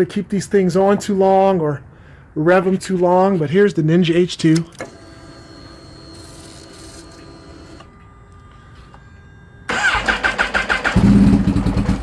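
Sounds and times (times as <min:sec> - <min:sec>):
starter motor cranking engine: 0:09.7 - 0:12.0.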